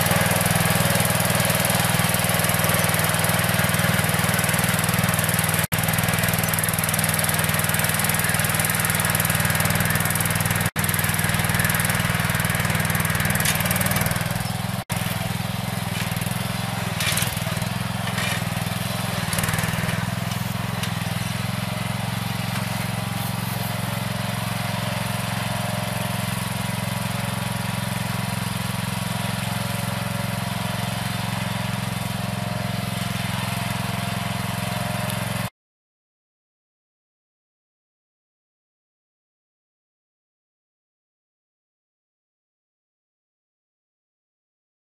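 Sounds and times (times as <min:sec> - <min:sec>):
tractor engine running: 0:00.0 - 0:35.5.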